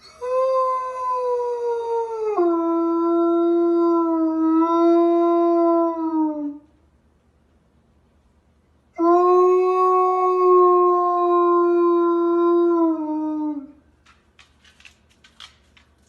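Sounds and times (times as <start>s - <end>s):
dog howling: 9.0s - 13.8s.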